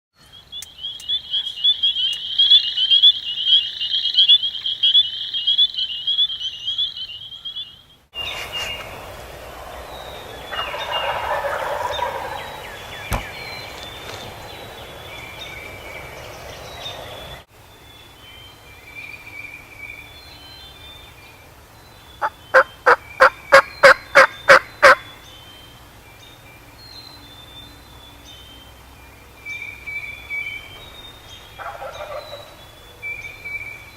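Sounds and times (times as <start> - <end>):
wild turkey gobbling: 1.0 - 7.8, 10.5 - 12.8, 22.2 - 25.0, 31.6 - 32.6.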